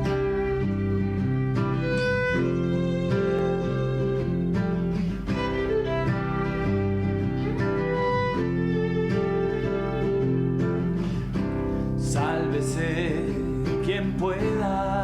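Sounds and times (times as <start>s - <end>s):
bowed string line: 0.0s - 11.2s
acoustic guitar chords: 0.0s - 15.0s.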